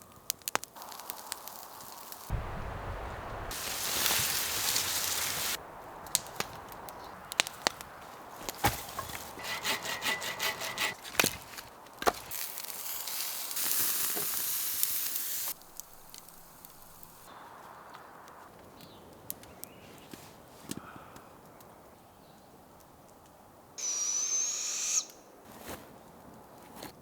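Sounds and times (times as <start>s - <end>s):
wood cracking and knocking: 6.1s - 12.4s
rough scraping: 7.4s - 12.4s
rasping strokes: 8.6s - 11.7s.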